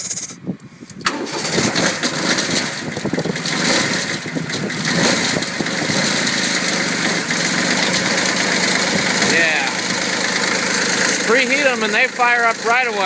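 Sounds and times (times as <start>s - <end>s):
diesel tractor engine starting: 0.9s - 13.0s.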